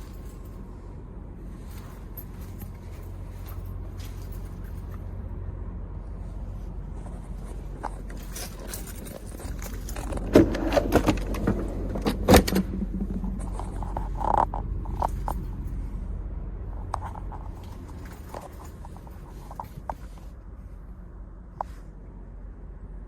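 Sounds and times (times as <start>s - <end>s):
low hum: 0.0s - 23.0s
sharp clicks and knocks: 7.0s - 15.6s.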